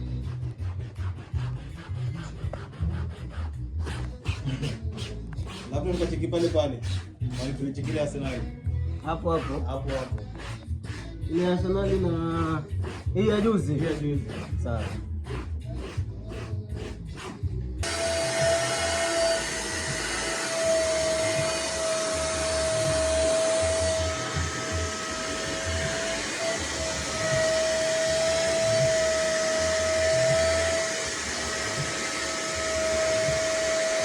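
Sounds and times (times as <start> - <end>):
vacuum cleaner running: 17.8 - 34.0.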